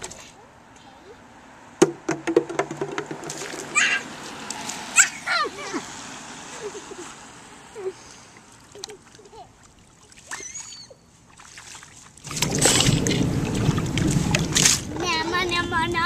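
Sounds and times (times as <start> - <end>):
water splashing in a puddle: 2.3 - 5.2, 8.3 - 15.6.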